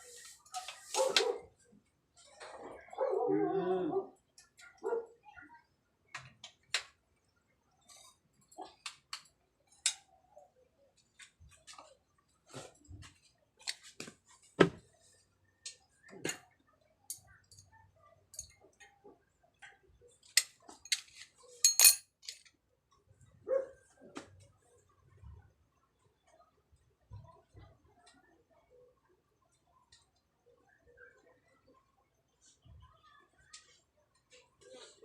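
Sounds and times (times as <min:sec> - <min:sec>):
metal tools clinking: 0:18.3 - 0:18.6, 0:20.8 - 0:22.4.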